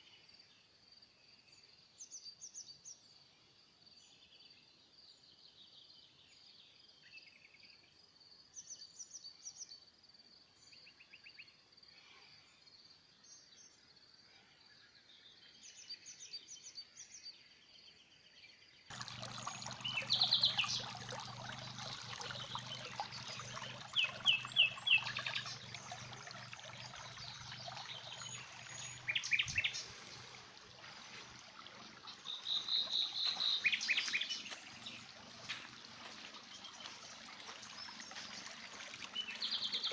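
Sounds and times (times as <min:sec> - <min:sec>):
small birds chirping and singing: 0:18.9 - 0:39.9.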